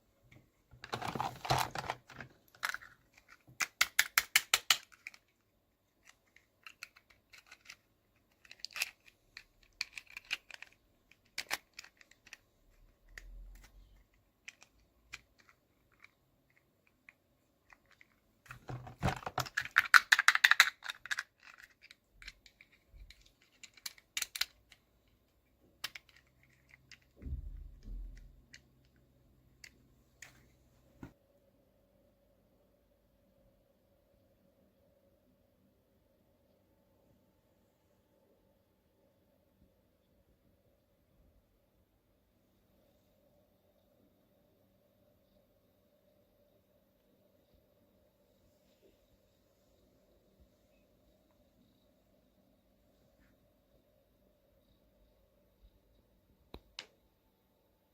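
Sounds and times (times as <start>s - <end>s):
packaging crinkling: 0.8s - 5.3s
plastic toy pieces clicking: 0.8s - 24.8s, 25.8s - 27.2s.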